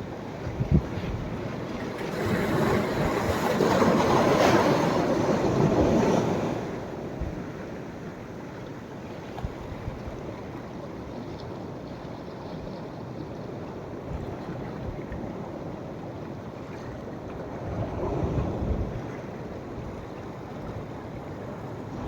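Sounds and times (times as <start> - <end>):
sea waves breaking: 0.0 - 9.6
wind thumps on microphone: 0.4 - 1.4.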